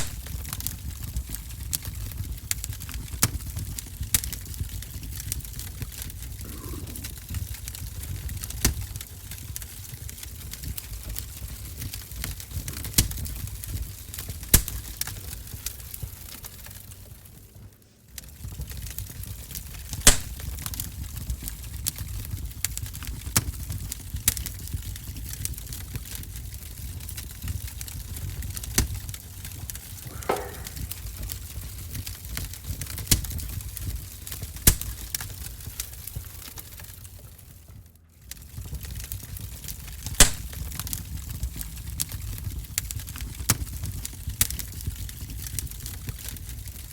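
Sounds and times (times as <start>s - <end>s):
loud fire pops: 0.0s - 46.9s
wood fire crackling: 0.0s - 46.9s.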